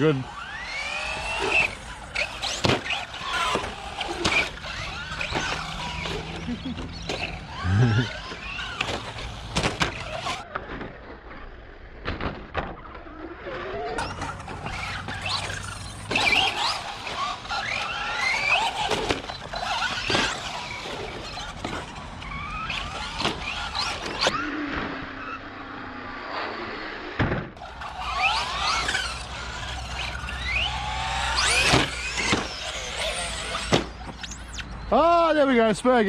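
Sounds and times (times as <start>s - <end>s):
tyre squeals: 0.0s - 10.4s, 13.5s - 25.8s, 27.6s - 36.0s
rc truck motor whine: 0.0s - 36.0s
knocks from jumps and landings: 27.2s - 27.6s.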